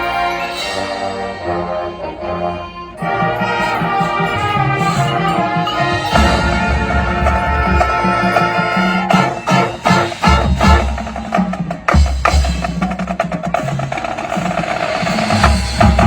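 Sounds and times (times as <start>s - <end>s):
marching band playing: 0.0s - 16.0s
bass drum hits: 6.1s - 8.4s
sharp drum strikes: 6.1s - 12.9s.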